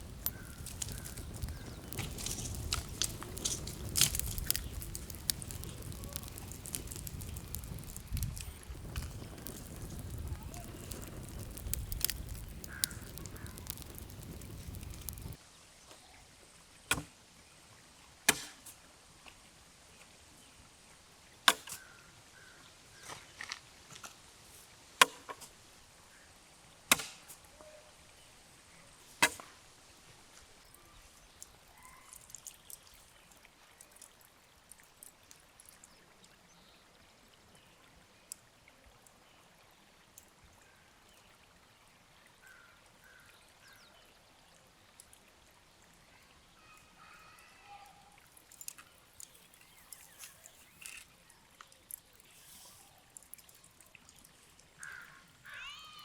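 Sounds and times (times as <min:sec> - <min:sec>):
rustling: 0:00.0 - 0:15.4
faint ticks: 0:48.4 - 0:52.4.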